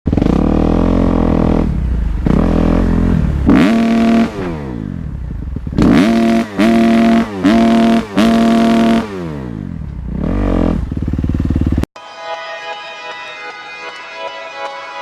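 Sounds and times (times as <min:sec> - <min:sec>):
dirt bike engine revving: 0:00.1 - 0:11.9.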